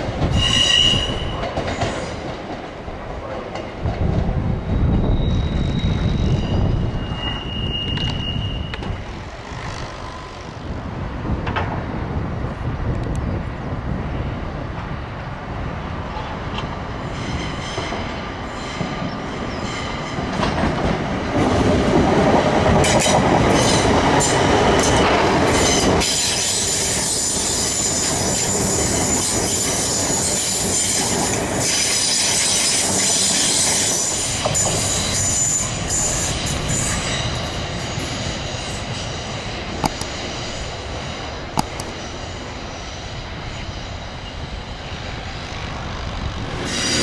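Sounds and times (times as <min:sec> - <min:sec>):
wheels squealing on curve: 0:00.3 - 0:01.4, 0:04.7 - 0:10.6
electric train running: 0:08.0 - 0:10.8.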